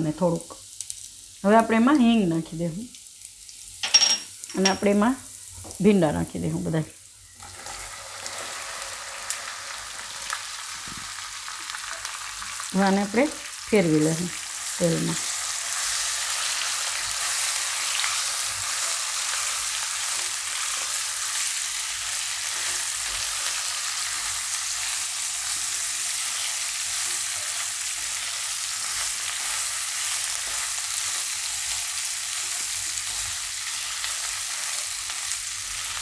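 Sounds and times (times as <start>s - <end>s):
okra sizzling in hot oil: 0.0s - 36.0s
spatula turning food in pan: 7.2s - 36.0s.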